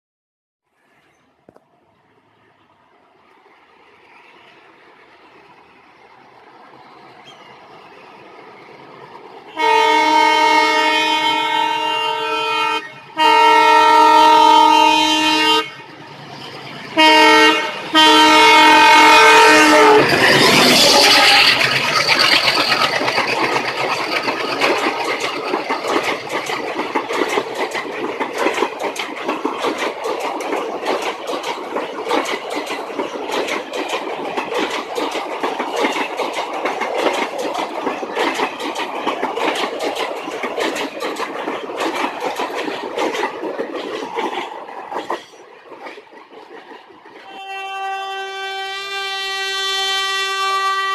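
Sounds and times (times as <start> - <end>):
train wheels clattering on rails: 3.4 - 50.9
train horn blasts: 9.5 - 15.9, 17.0 - 21.6, 47.2 - 50.9.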